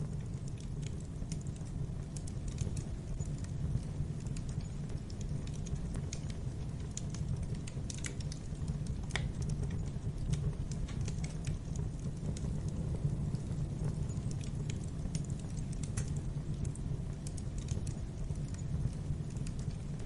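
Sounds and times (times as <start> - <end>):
fire crackling and popping: 0.0 - 20.0
fire flames rumbling: 0.0 - 20.0.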